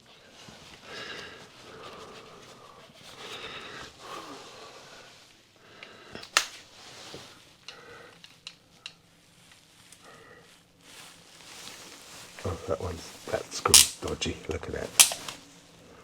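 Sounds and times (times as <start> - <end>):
hand tools clicking and knocking: 13.6 - 14.2, 15.0 - 15.4.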